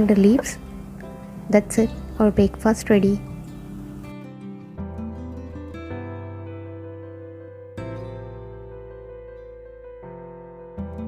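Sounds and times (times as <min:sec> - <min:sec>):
soft piano chords: 0:00.0 - 0:11.0.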